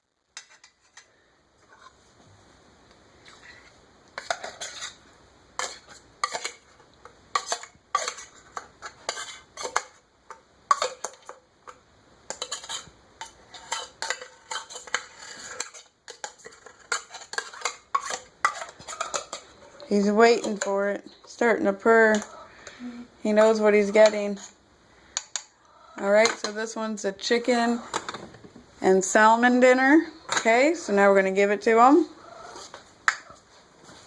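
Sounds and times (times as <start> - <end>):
spoon clinking and scraping a can: 4.2 - 5.0, 5.6 - 6.7, 7.3 - 20.7.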